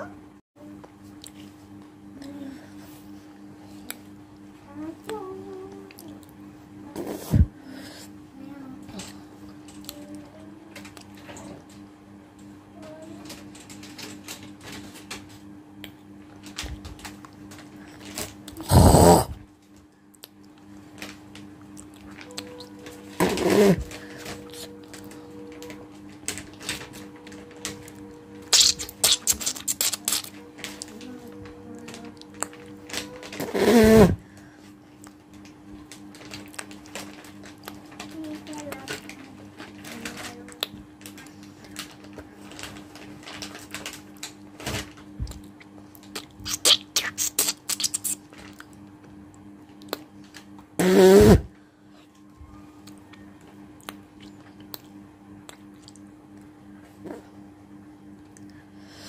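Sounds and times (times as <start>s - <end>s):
steady low hum: 0.0s - 59.0s
person spitting: 18.6s - 19.4s, 23.2s - 23.9s, 28.5s - 30.3s, 33.4s - 34.2s, 46.2s - 48.3s, 50.8s - 51.5s
wet clicking mouth sounds: 28.5s - 30.3s, 45.3s - 48.8s, 49.8s - 50.1s, 53.8s - 56.0s.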